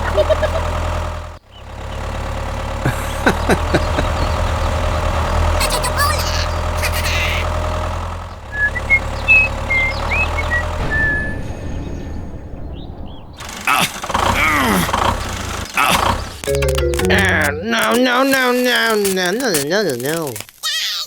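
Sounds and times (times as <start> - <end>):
small vehicle engine humming: 0.0 - 11.2, 13.4 - 18.9
sharp clicks: 13.4 - 20.6.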